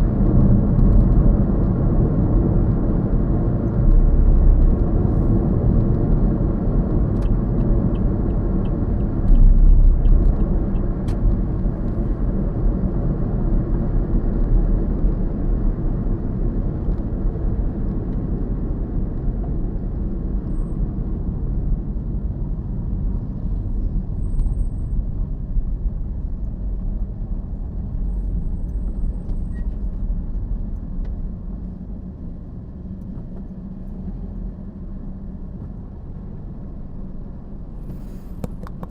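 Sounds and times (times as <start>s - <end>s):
car driving road and engine rumble: 0.0s - 38.9s.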